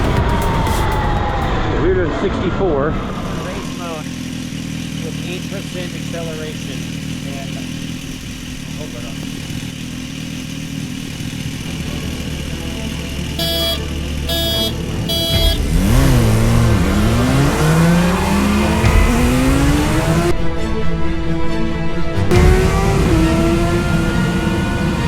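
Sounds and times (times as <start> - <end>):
wind and road rumble: 0.0 - 13.2
short beeps: 13.4 - 15.6.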